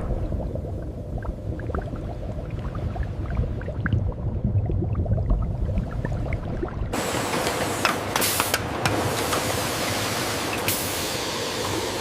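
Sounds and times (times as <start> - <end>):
carbonated water bubbling: 0.0 - 7.0.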